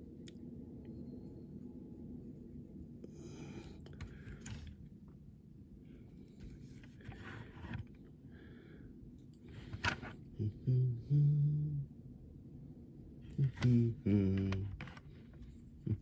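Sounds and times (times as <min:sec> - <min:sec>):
scraping and rubbing on model car: 0:06.3 - 0:08.0
person humming: 0:10.4 - 0:12.0, 0:13.3 - 0:15.0.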